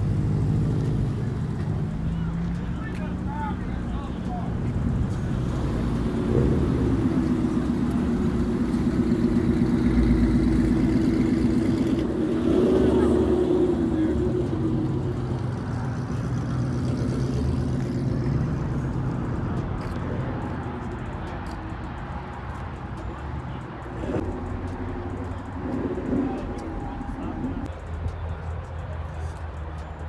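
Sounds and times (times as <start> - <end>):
car engine at low revs: 0.0 - 22.1.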